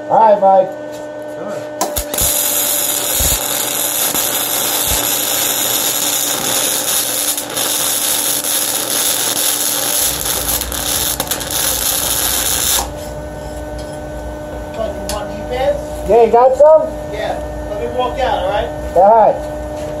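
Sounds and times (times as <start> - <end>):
welding arc crackling: 1.8 - 13.2.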